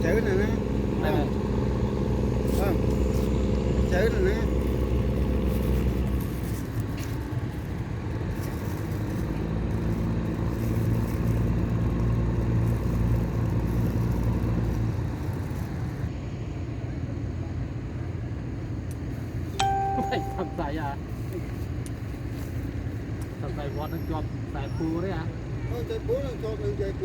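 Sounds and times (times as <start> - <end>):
vehicle engine humming: 0.0 - 16.2, 19.4 - 24.6.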